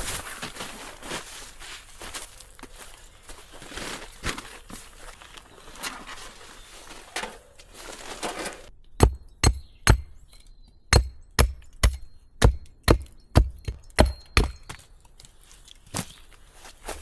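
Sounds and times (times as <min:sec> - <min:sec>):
rustling on forest floor: 0:00.0 - 0:08.7, 0:15.2 - 0:17.0.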